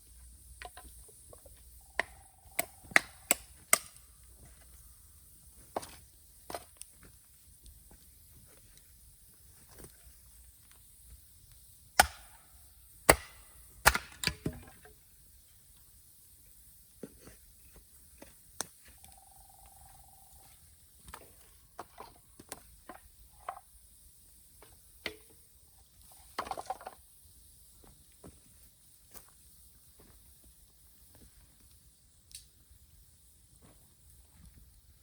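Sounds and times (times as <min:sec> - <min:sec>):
brief steady tone: 0:01.8 - 0:03.0, 0:18.9 - 0:20.6
axe chopping wood: 0:02.0 - 0:04.0, 0:12.0 - 0:12.4, 0:13.1 - 0:14.7.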